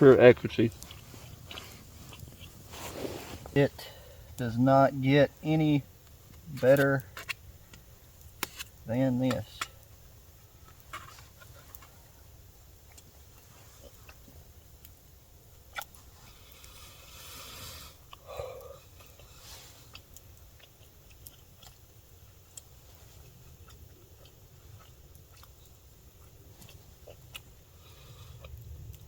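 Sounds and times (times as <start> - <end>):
rustle: 0.0 - 15.0, 15.6 - 29.0
man chewing: 0.5 - 4.4, 9.8 - 29.0.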